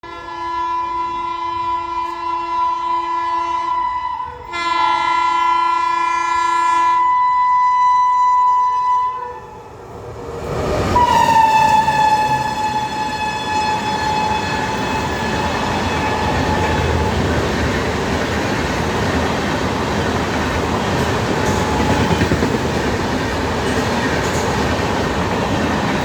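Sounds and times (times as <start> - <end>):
train horn blasts: 0.0 - 9.6, 11.0 - 17.1
train rushing past: 0.2 - 26.0.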